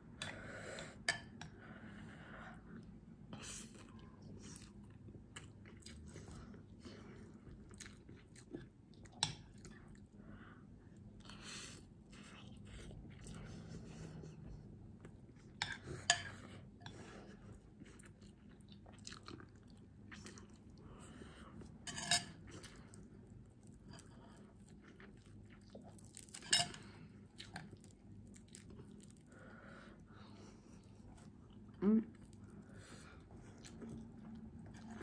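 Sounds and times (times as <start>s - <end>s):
chewing and mouth sounds: 2.7s - 10.2s, 16.9s - 21.8s, 22.4s - 29.5s, 30.2s - 35.0s.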